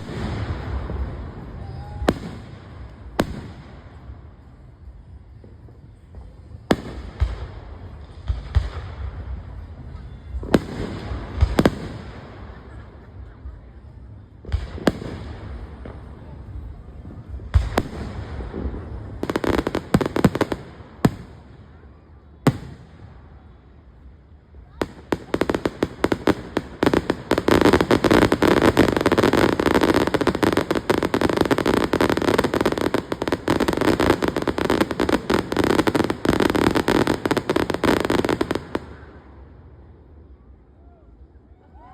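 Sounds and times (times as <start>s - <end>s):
fireworks bangs: 0.0s - 4.6s, 5.3s - 39.5s
firecrackers rapid pops: 17.5s - 21.6s, 24.8s - 39.1s.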